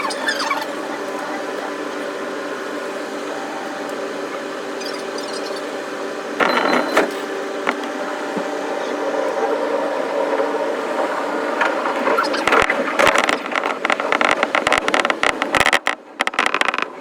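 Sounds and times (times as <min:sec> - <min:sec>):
electric train running hum: 0:00.0 - 0:16.2.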